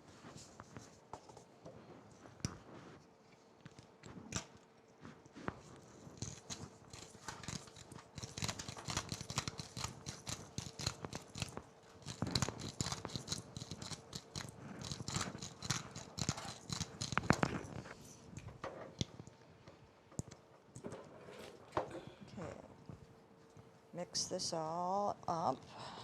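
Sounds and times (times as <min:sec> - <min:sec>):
faint steady hum: 0:00.0 - 0:26.0
pepper mill grinding: 0:06.2 - 0:17.8.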